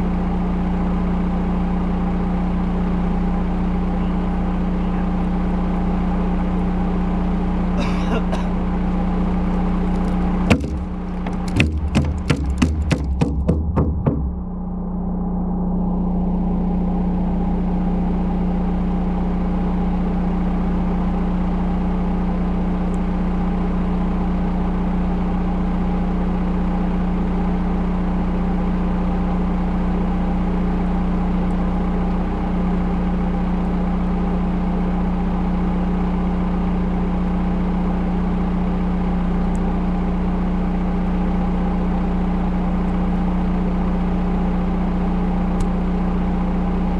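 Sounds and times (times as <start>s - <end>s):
diesel engine humming: 0.0s - 46.9s
sharp knocks: 10.5s - 14.5s.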